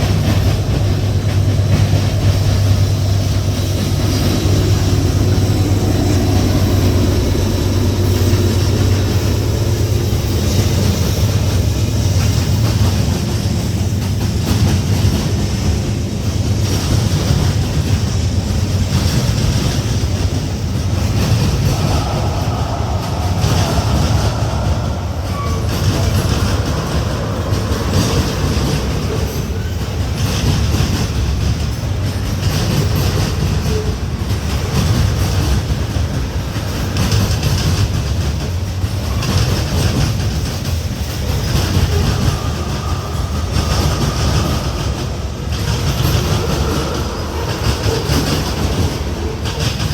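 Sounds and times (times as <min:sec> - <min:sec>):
low drone: 0:00.0 - 0:15.8, 0:20.4 - 0:30.3, 0:41.2 - 0:49.5
freight train cars clattering: 0:00.0 - 0:49.9.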